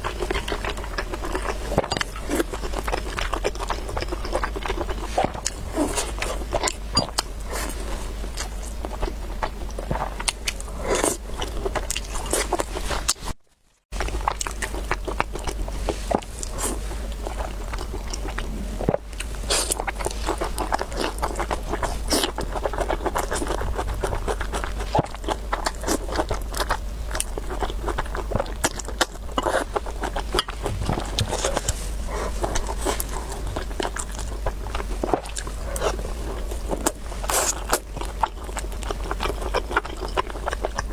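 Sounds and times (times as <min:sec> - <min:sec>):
chewing noodles: 0:00.0 - 0:13.3, 0:14.0 - 0:40.9
steady low hum: 0:14.0 - 0:40.9.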